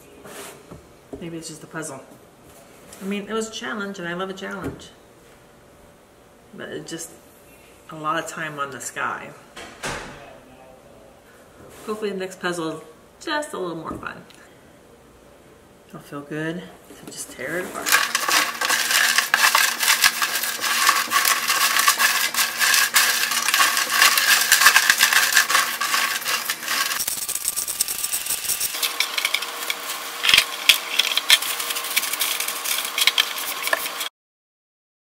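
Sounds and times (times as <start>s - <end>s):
jigsaw pieces clattering: 17.8s - 34.1s.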